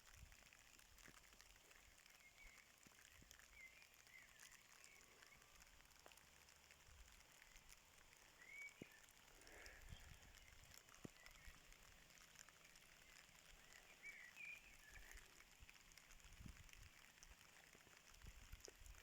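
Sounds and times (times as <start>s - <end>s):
faint light rain: 0.0s - 19.0s
bird chirps: 8.4s - 9.0s, 13.8s - 15.3s.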